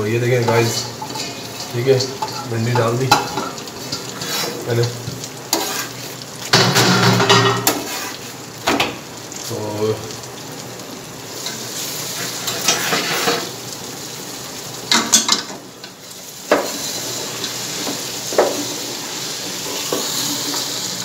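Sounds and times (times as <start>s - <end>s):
food sizzling in a pot: 0.0s - 21.0s
wooden spoon stirring: 0.4s - 6.0s.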